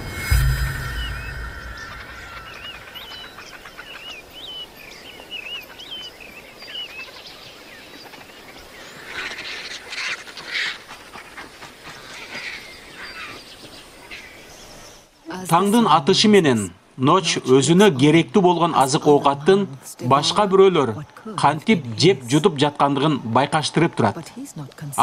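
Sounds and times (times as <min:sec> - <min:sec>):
birds chirping: 0:00.0 - 0:16.6
harsh raspy bird calls: 0:08.0 - 0:13.4.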